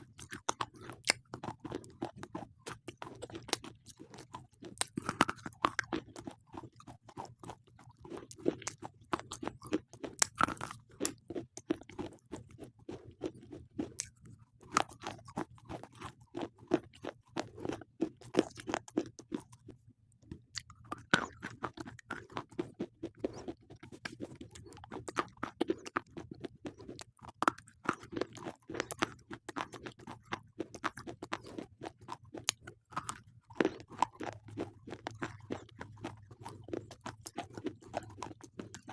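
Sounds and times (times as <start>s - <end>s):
gritty chewing crunches: 0.0s - 38.9s.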